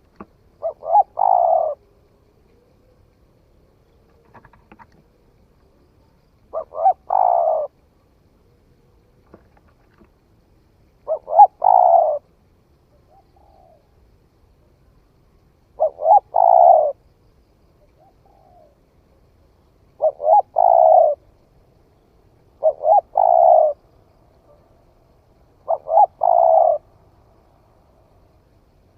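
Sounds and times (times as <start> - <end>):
dove cooing: 0.6 - 3.2, 6.4 - 7.8, 11.0 - 12.3, 12.9 - 13.9, 15.8 - 17.0, 17.8 - 18.8, 19.9 - 21.3, 22.4 - 24.7, 25.4 - 27.0.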